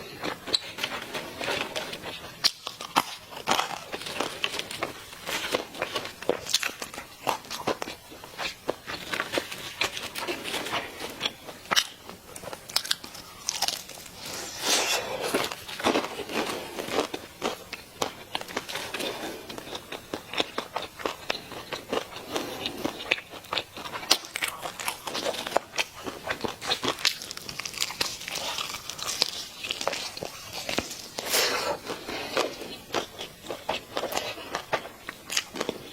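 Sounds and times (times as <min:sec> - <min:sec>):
chewing: 0:00.0 - 0:35.9
crunchy biting of fried chicken: 0:00.0 - 0:35.9.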